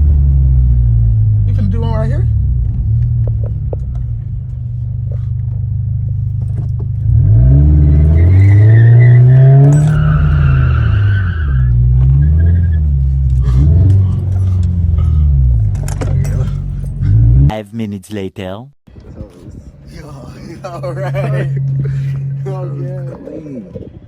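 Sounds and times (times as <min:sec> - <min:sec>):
car engine idling and revving: 0:00.0 - 0:17.5, 0:19.5 - 0:24.0
tyres squealing: 0:07.8 - 0:17.2.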